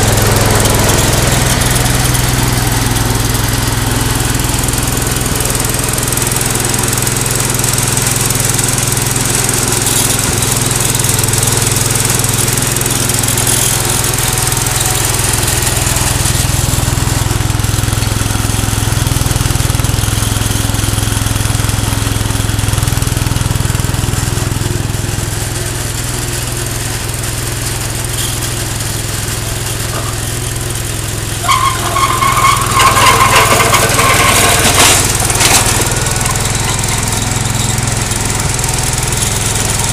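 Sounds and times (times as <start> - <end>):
garden tractor engine running: 0.0 - 39.9
high-pitched grating noise: 31.4 - 35.1.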